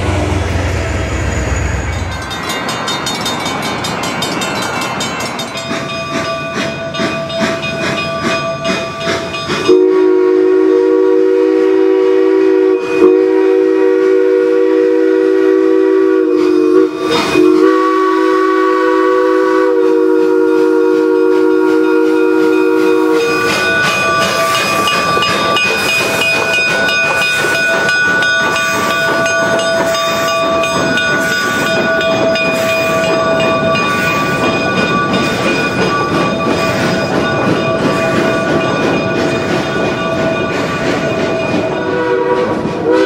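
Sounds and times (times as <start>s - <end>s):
steam whistle chord: 0.0s - 2.3s, 9.6s - 25.0s, 41.1s - 43.0s
high ringing: 0.0s - 9.8s, 22.1s - 42.0s
train running gear rumble: 0.0s - 43.0s.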